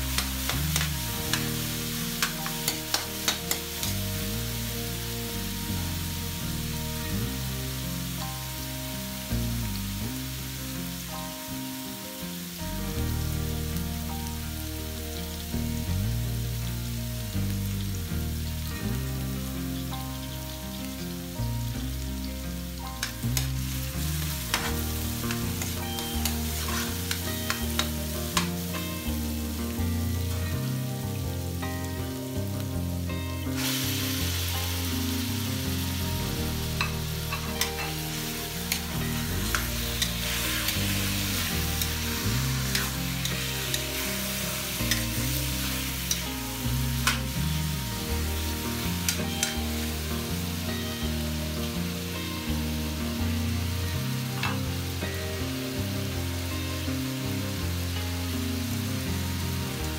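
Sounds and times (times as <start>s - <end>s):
chicken hitting hot oil: 0.0s - 4.0s, 22.8s - 29.6s, 36.3s - 47.5s, 48.8s - 49.9s, 54.4s - 54.8s
onion and garlic sizzling in oil: 0.0s - 59.9s
metal spatula scraping a pan: 23.0s - 28.5s, 36.8s - 46.4s.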